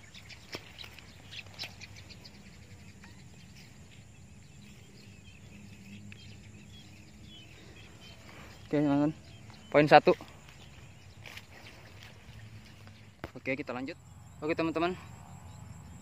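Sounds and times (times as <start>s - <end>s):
faint bird chirps: 0.0s - 16.0s
outdoor background noise: 0.0s - 16.0s.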